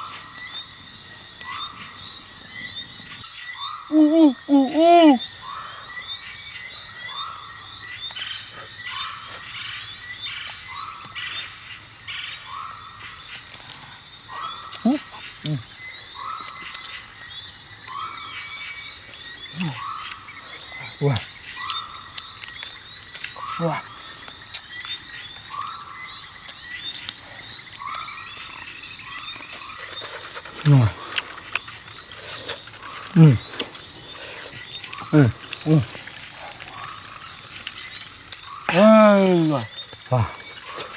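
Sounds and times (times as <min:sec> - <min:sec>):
animal calling: 0:03.1 - 0:06.2, 0:14.3 - 0:17.0, 0:19.4 - 0:22.6, 0:23.3 - 0:24.3, 0:26.9 - 0:40.9.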